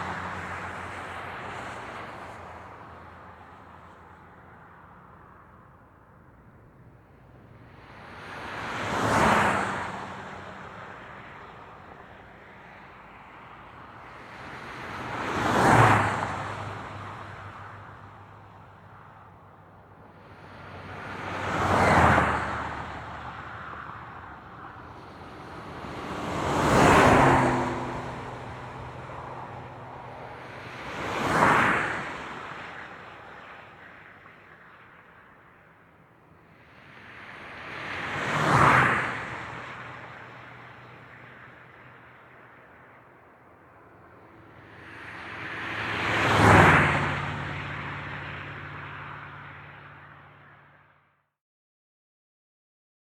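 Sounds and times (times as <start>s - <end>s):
vehicles passing by: 0.0s - 51.0s
distant traffic rush: 10.2s - 50.8s.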